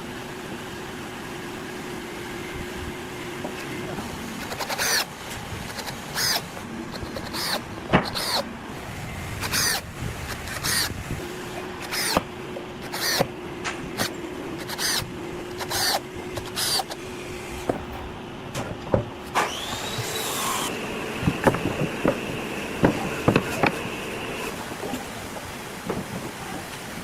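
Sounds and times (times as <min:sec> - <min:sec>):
rasping tool strokes: 0:04.4 - 0:08.4, 0:09.4 - 0:10.9, 0:11.8 - 0:12.2, 0:12.8 - 0:13.3, 0:14.0 - 0:18.0
rising and falling whine: 0:08.5 - 0:18.6, 0:19.2 - 0:24.7.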